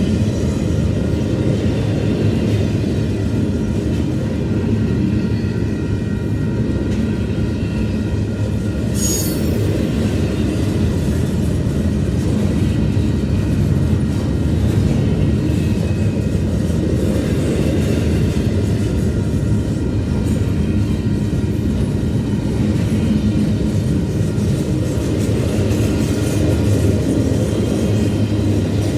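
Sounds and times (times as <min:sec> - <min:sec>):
freight train wheels rumbling: 0:00.0 - 0:28.9
high-pitched wheel squeal: 0:09.0 - 0:09.8.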